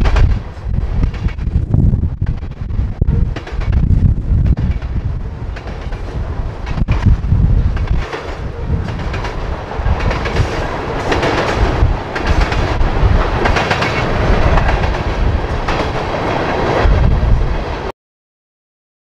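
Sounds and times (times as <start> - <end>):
freight train rolling past: 0.0 - 17.9
wheels clicking over rail joints: 2.4 - 16.8.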